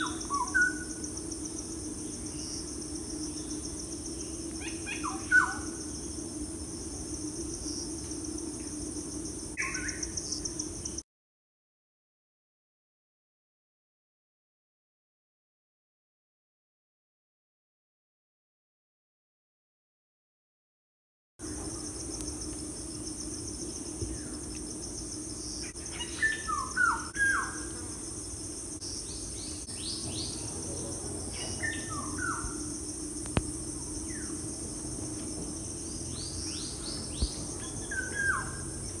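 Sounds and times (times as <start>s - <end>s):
high insect trill: 0.0s - 11.0s, 21.4s - 39.0s.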